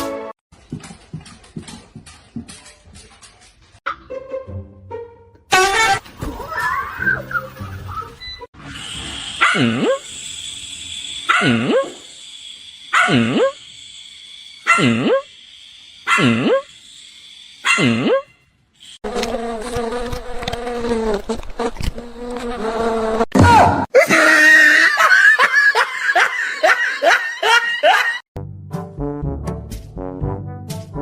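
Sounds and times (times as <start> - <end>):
dog barking: 9.4 - 10.0, 11.3 - 11.9, 12.9 - 13.6, 14.6 - 15.2, 17.6 - 18.2.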